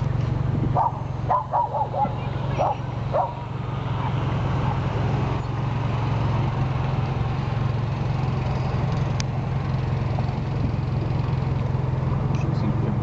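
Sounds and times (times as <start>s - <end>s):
car engine hum: 0.0s - 13.0s
road noise: 0.0s - 13.0s.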